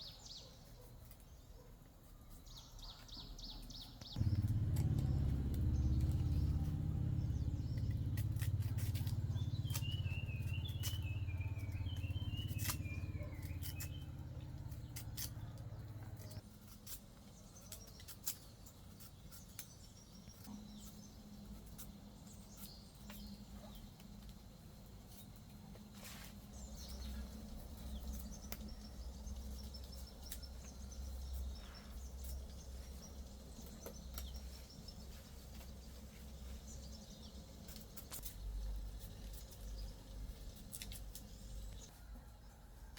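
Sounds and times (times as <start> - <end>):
birds chirping: 2.4 - 16.5, 26.4 - 41.9
low rumble: 4.2 - 16.4.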